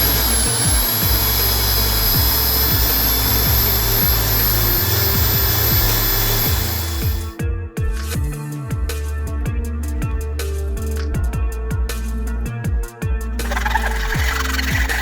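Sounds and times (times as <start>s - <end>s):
power tool whining: 0.0s - 7.4s, 13.4s - 15.0s
electronic background music: 0.0s - 15.0s.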